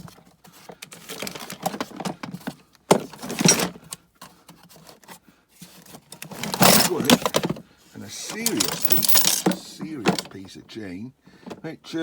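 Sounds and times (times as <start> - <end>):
metal items clattering: 0.9 - 2.2, 3.1 - 3.8, 6.2 - 7.6, 8.2 - 10.3.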